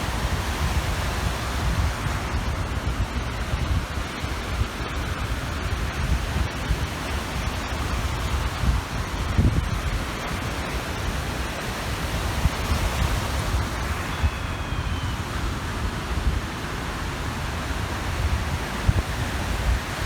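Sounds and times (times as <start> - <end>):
waves washing onto shore: 0.0 - 20.0
wind gusting on microphone: 0.0 - 20.0
faint high call: 13.8 - 15.5.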